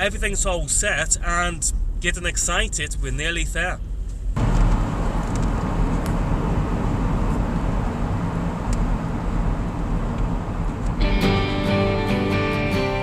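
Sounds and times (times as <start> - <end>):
car cabin road rumble: 0.0 - 11.7
guitar music: 11.0 - 13.0.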